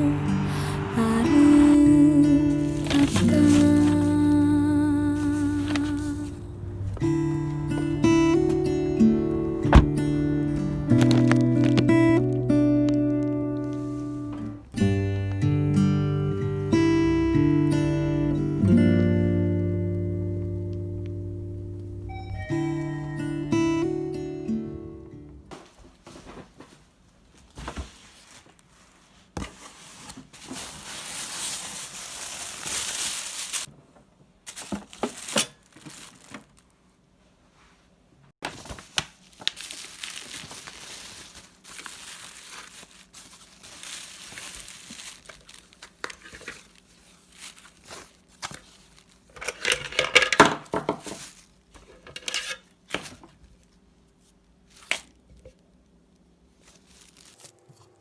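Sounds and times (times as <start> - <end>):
crinkling and tearing: 2.5 - 4.5, 5.1 - 6.4, 9.8 - 13.8, 28.1 - 33.7, 34.5 - 36.8, 38.4 - 52.0, 56.5 - 58.0.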